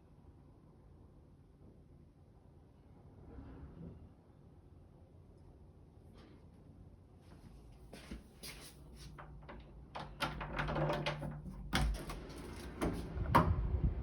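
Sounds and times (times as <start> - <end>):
household clicks and knocks: 9.1 - 13.5.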